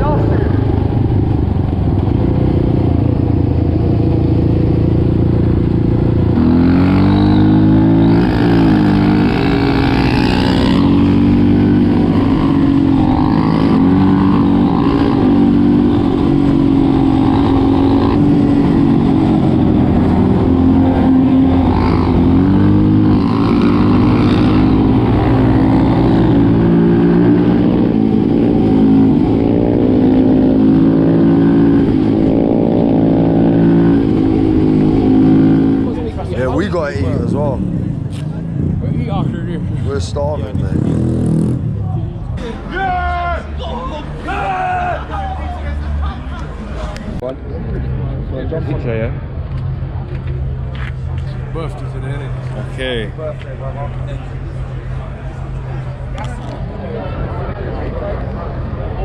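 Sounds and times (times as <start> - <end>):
quad bike engine revving: 0.0 - 38.3.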